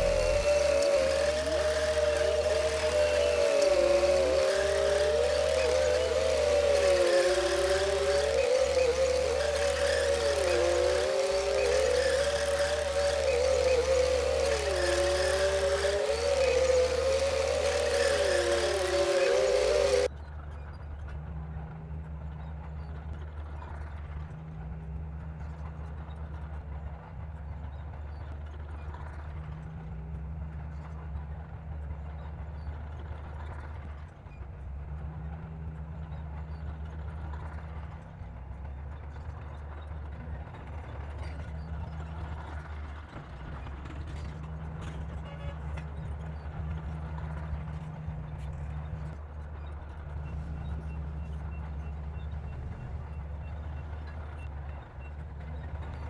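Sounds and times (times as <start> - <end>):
bulldozer diesel engine drone: 0.0 - 20.1.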